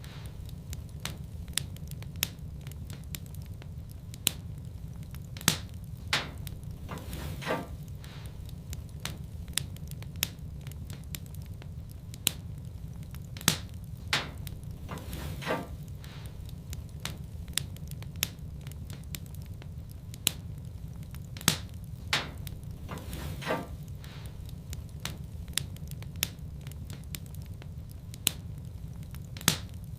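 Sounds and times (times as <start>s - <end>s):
low rumble of burning fire: 0.0s - 29.9s
wood fire crackling and popping: 0.0s - 29.9s.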